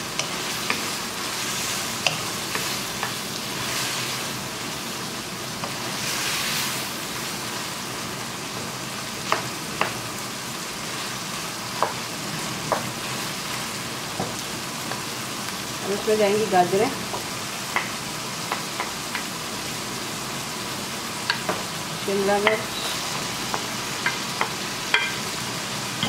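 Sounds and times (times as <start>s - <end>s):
wooden spatula stirring in wok: 0.0s - 4.3s
chicken sizzling in hot oil: 0.0s - 26.0s.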